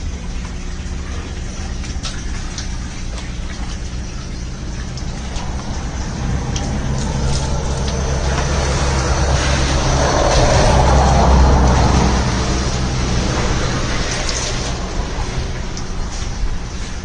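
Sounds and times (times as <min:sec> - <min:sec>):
vehicle engine humming: 0:00.0 - 0:17.0
rushing noise: 0:04.7 - 0:17.0.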